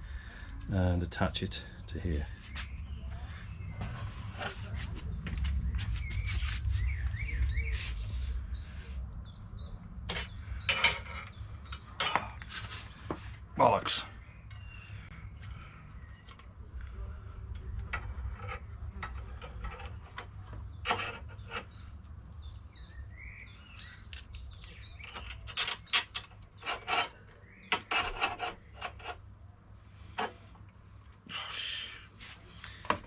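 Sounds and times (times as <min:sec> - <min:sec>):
metal parts clicking and scraping: 0:10.1 - 0:12.8, 0:17.8 - 0:21.8, 0:24.1 - 0:29.2.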